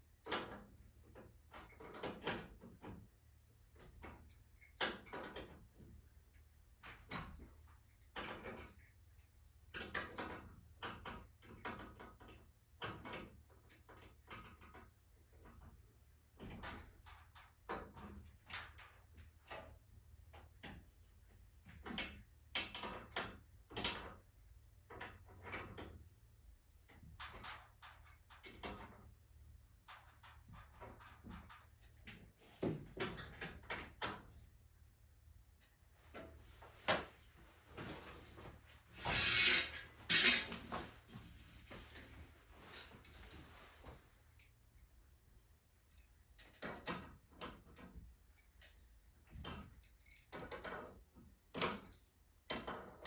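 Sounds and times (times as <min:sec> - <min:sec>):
scraping rattling noises: 0:36.4 - 0:44.0.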